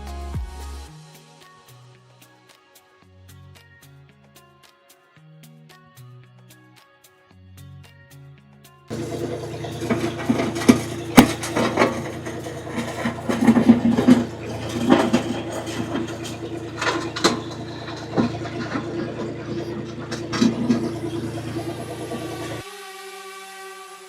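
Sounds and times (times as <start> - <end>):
sharp metal clanks and knocks: 8.9 - 22.6
tractor engine running: 8.9 - 22.6.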